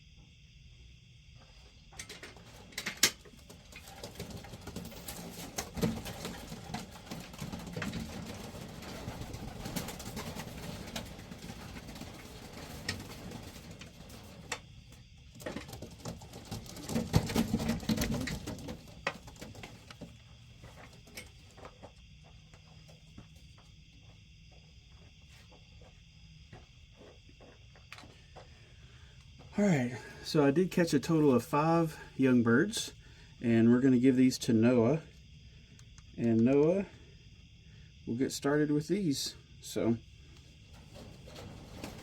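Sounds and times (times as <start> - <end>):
rustling and scuffling: 1.3 - 31.9, 40.3 - 42.0
pigeons cooing: 3.4 - 14.6.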